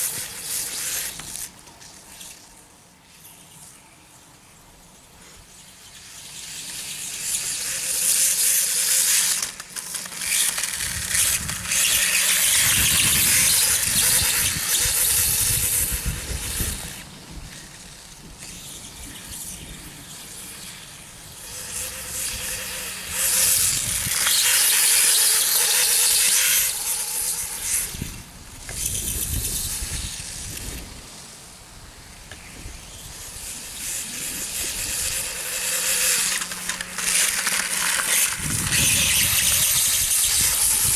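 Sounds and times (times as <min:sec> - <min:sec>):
electric dirtbike motor squealing: 0:00.0 - 0:03.8, 0:05.2 - 0:31.0, 0:32.1 - 0:40.9.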